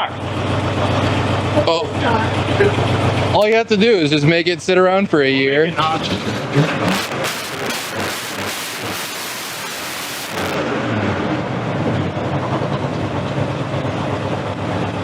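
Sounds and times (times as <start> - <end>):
engine idling with low pulse: 0.0 - 15.0
loud rushing noise: 5.9 - 11.5.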